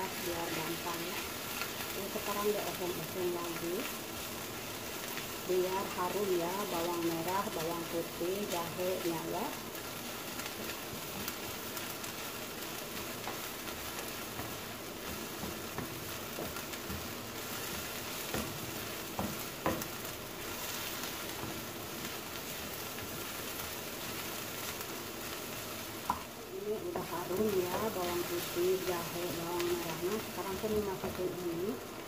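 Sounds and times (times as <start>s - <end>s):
vegetables sizzling in hot oil: 0.0s - 32.0s
spatula knocking on pan: 18.2s - 20.0s.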